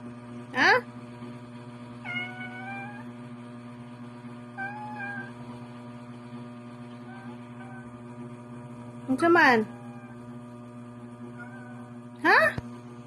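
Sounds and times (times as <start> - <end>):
low electrical hum: 0.0 - 13.0
cat meowing: 2.0 - 3.1, 4.6 - 5.4, 7.0 - 8.0, 9.7 - 10.2, 11.4 - 11.9.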